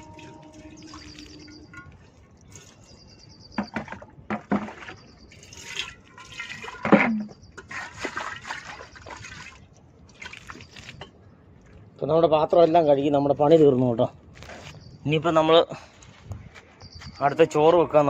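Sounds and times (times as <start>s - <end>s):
metal pots clanking: 0.0s - 2.2s, 3.6s - 8.0s
water splashing and trickling: 0.0s - 12.6s.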